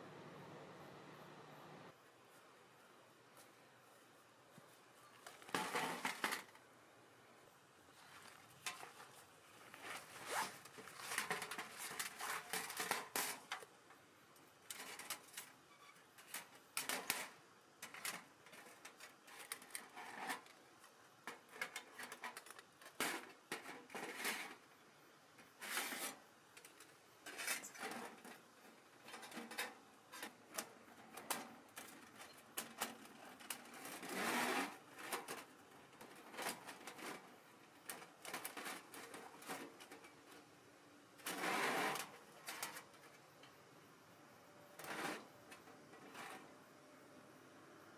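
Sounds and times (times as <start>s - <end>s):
handling clicks and rustles: 7.9s - 24.7s, 25.4s - 43.7s.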